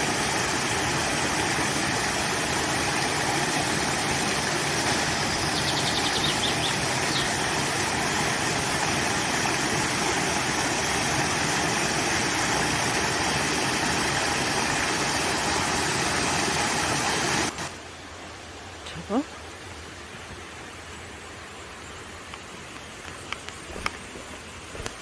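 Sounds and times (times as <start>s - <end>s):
water rushing: 0.0s - 20.1s, 22.1s - 25.0s
bird trilling: 4.8s - 7.5s.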